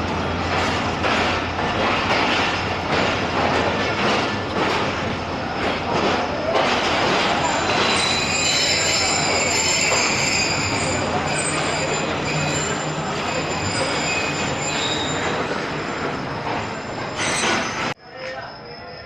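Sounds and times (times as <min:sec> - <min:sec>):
train wheels rolling on rails: 0:00.0 - 0:18.0
high-pitched wheel squeal: 0:07.4 - 0:18.0.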